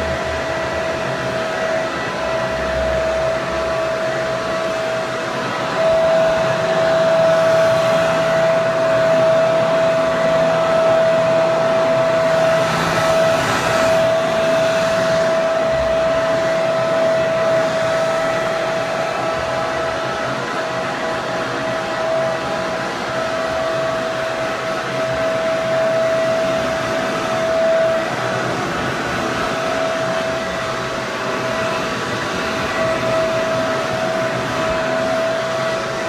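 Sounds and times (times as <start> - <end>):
hair dryer running: 0.0 - 36.0.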